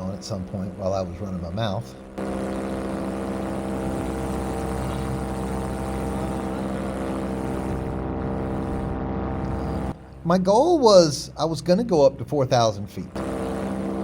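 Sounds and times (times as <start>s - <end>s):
paramotor engine and propeller: 0.0s - 10.2s, 13.1s - 14.0s.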